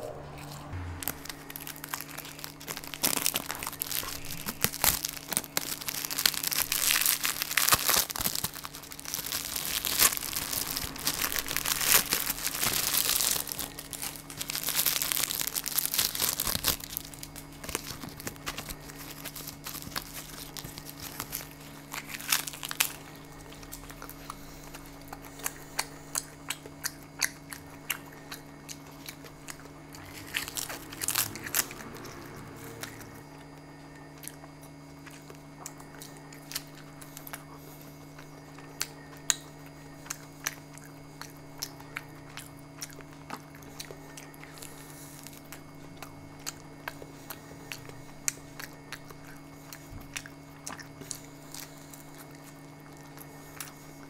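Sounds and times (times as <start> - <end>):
food packaging crinkling and tearing: 0.4 - 54.0.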